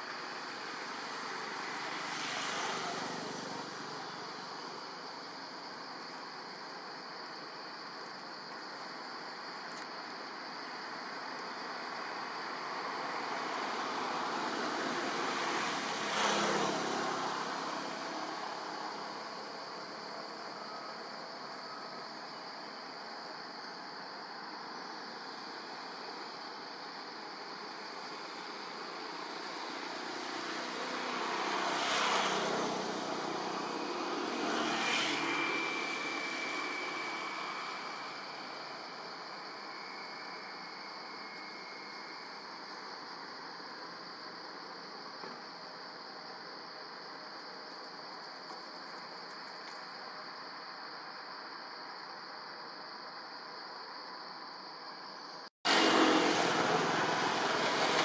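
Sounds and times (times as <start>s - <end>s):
vehicle passing by: 0.4s - 4.2s, 13.2s - 19.3s, 29.3s - 38.4s, 55.7s - 58.0s
faint steady whine: 35.3s - 48.0s.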